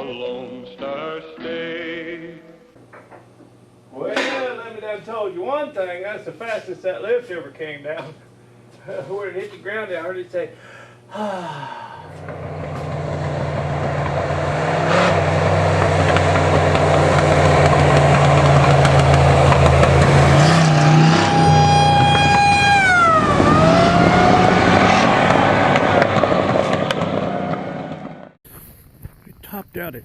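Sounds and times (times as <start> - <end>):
high whine: 11.9 - 30.0
vehicle engine running: 12.1 - 28.4.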